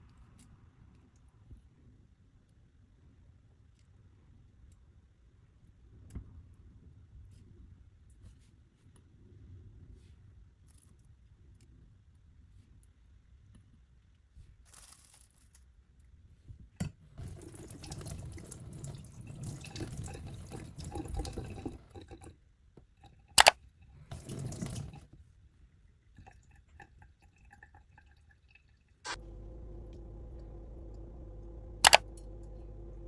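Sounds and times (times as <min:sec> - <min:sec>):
tap running into sink: 0:16.8 - 0:22.3, 0:24.1 - 0:25.1.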